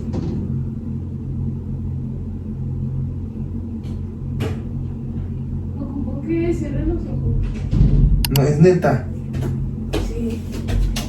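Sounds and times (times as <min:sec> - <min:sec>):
steady low hum: 0:00.0 - 0:11.0
sharp click: 0:08.2 - 0:08.5.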